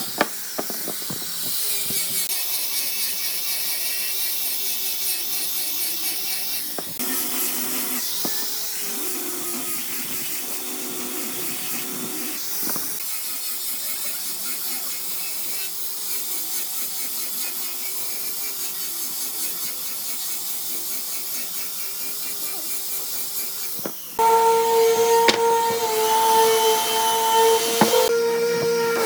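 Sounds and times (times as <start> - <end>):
power tool motor whining: 0.0 - 2.3, 22.0 - 29.0
higher-pitched power tool: 24.1 - 29.0.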